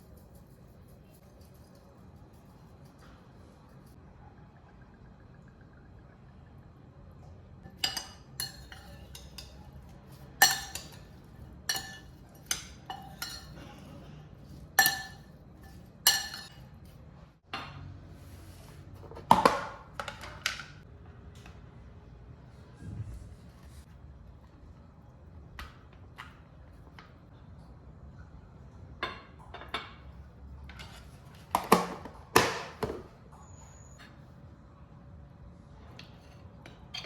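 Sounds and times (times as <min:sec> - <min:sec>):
dishes and cutlery clinking: 0:07.6 - 0:17.9, 0:29.0 - 0:33.1.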